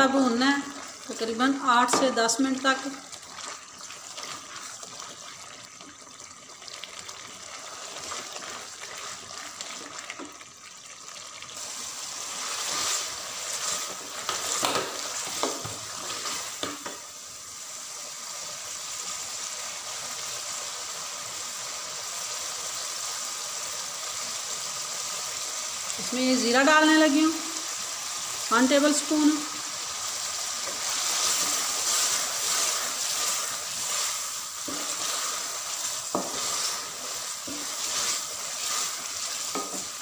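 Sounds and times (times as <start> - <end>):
onions sizzling in oil: 0.0 - 40.0
spatula scraping metal pot: 30.6 - 39.9.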